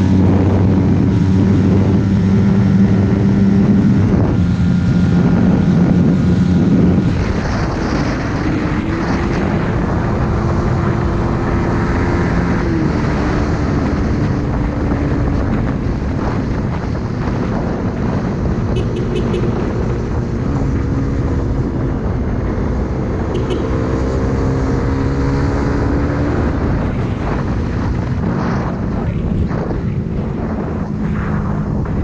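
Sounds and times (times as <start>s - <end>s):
motorcycle engine running: 8.9s - 32.0s.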